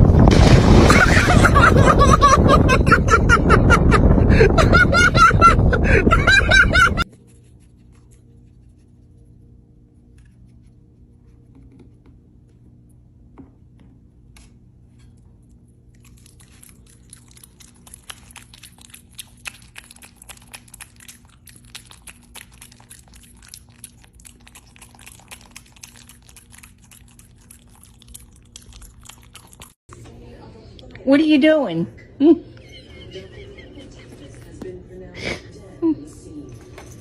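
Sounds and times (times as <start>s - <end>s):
steady low hum: 0.0s - 37.0s
crunchy chewing: 15.4s - 29.8s.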